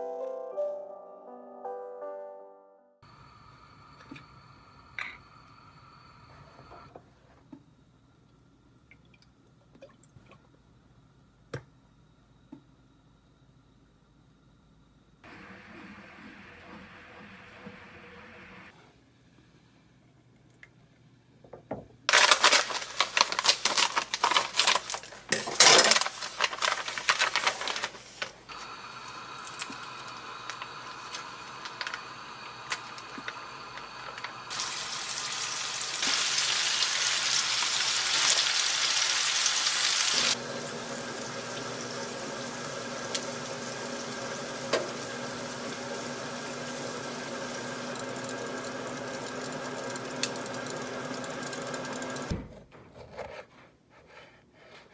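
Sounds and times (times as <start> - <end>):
rustling and handling noises: 22.1 - 34.8
loud even hiss: 27.1 - 40.4.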